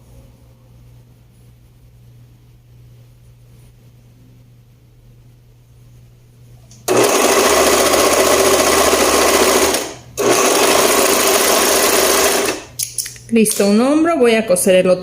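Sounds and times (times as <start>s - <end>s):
overlock sewing machine stitching: 6.9s - 12.7s.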